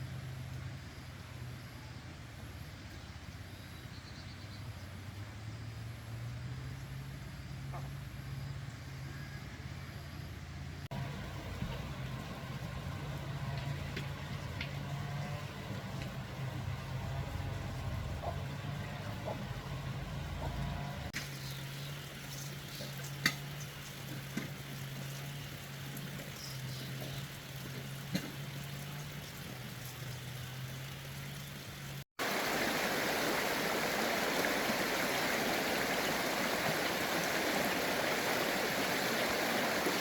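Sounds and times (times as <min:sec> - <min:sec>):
running water rushing: 0:10.9 - 0:40.0.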